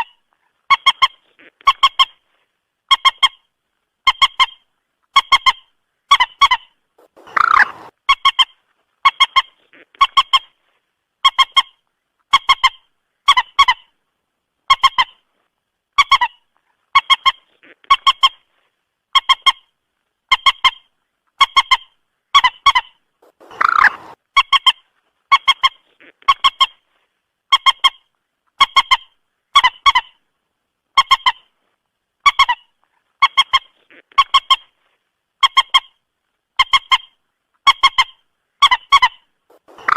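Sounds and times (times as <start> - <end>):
moorhen clucking calls: 5.2 - 10.6, 20.3 - 26.8, 36.6 - 39.9
harsh moorhen call: 6.1 - 8.4, 22.4 - 24.6, 37.8 - 39.9.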